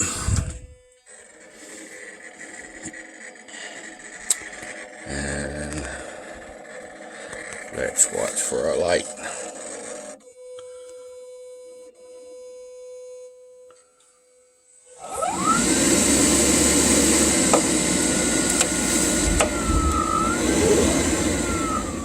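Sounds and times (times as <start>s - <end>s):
water heater fan whine: 0.0s - 10.2s, 15.0s - 22.0s
water heater rushing run: 15.0s - 22.0s
clicks: 17.4s - 22.0s.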